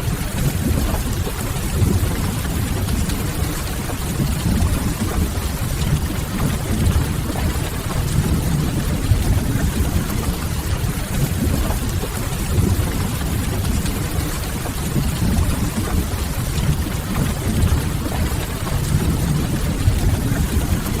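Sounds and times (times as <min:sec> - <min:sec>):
deep constant rumble: 0:00.0 - 0:21.0
rain hissing: 0:04.9 - 0:10.4, 0:15.1 - 0:21.0.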